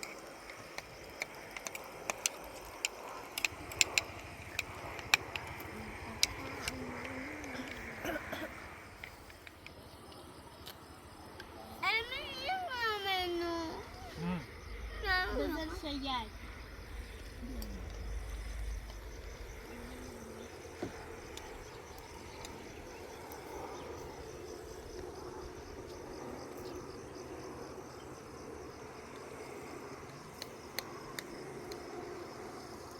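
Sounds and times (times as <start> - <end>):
faint clicks: 0.0 - 8.2
crickets chirping: 0.0 - 32.9.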